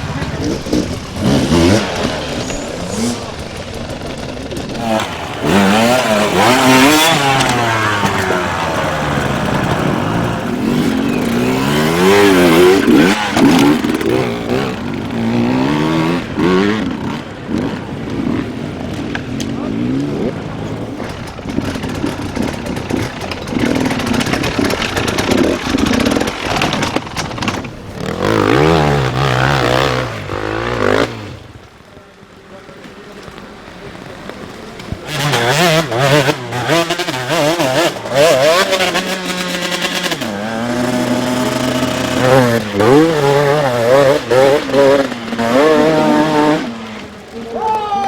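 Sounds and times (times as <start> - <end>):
rattly clatter: 0.0 - 17.6, 20.3 - 31.3
dirt bike engine revving: 0.0 - 48.0.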